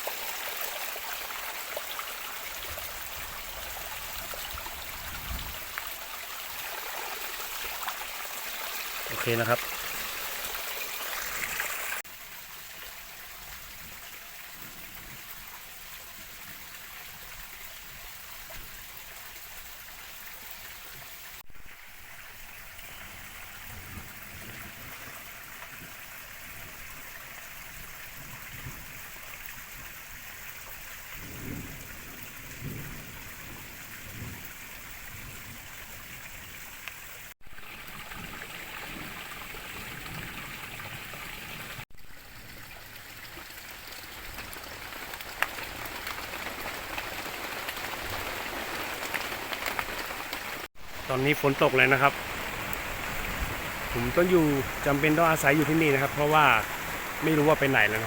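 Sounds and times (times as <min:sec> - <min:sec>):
river water rushing: 0:00.0 - 0:12.0, 0:46.5 - 0:58.0
steady rain falling: 0:00.0 - 0:19.2, 0:21.8 - 0:37.2, 0:37.8 - 0:58.0.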